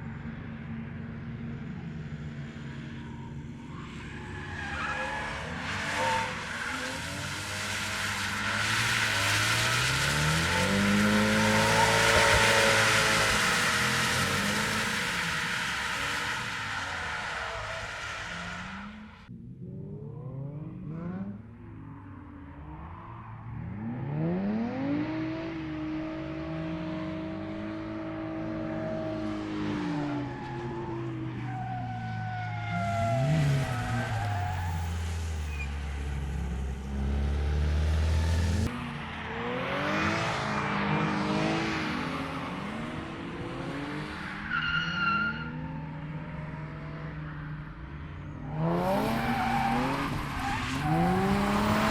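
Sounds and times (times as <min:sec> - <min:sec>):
car engine revving hard: 0:48.6 - 0:51.9.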